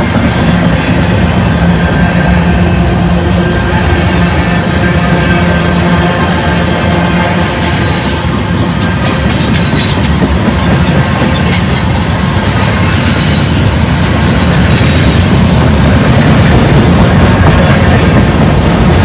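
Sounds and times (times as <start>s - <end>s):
train wheels on rail: 0.0s - 19.0s.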